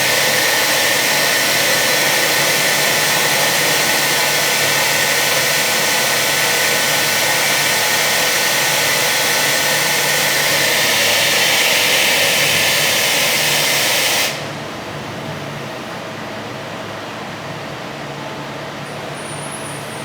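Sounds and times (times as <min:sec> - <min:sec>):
machine hum: 0:00.0 - 0:15.2
loud steady hiss: 0:00.0 - 0:15.4.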